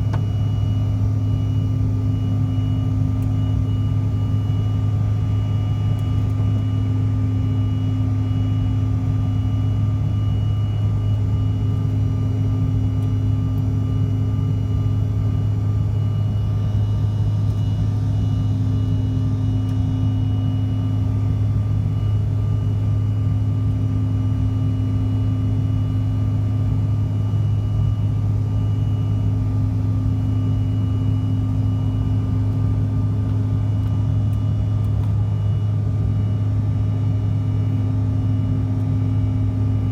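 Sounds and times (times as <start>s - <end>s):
jet engines droning in cabin: 0.0s - 39.9s.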